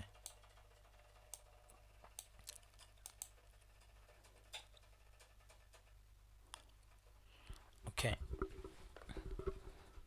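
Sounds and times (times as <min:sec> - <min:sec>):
computer keys clicking: 0:00.0 - 0:00.6, 0:02.1 - 0:03.4.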